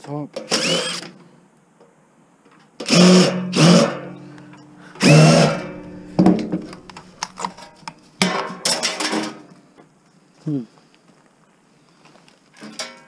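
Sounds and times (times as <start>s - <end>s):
cordless drill motor whine: 0.5s - 1.0s, 5.0s - 7.5s.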